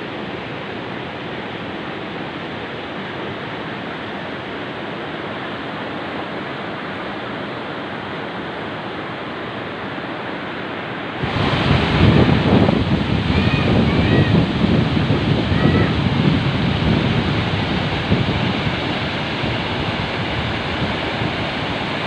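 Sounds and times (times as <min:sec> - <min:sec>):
rushing outdoor noise: 0:00.0 - 0:22.0
wind buffeting microphone: 0:11.2 - 0:22.0.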